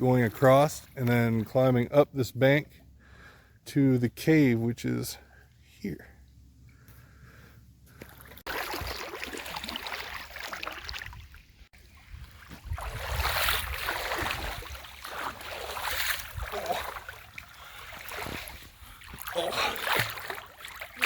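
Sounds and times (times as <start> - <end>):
water splashing around wading legs: 8.0 - 21.0.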